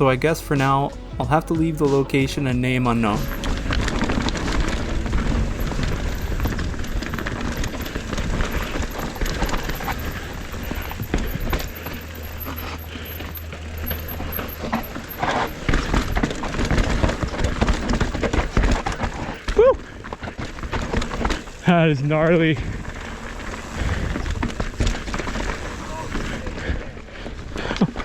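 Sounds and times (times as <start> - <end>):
low rumble: 0.0 - 17.7
bike clattering on rough ground: 0.0 - 28.0.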